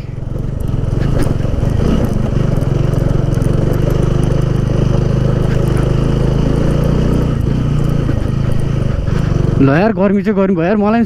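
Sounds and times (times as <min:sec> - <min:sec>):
motorcycle engine under load: 0:00.0 - 0:11.0.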